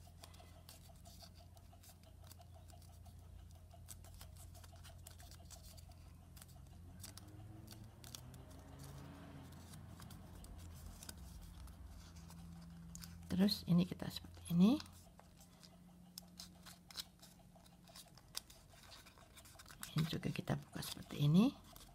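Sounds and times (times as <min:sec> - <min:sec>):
paper crinkling and clicking: 0:03.8 - 0:13.5, 0:15.6 - 0:21.9.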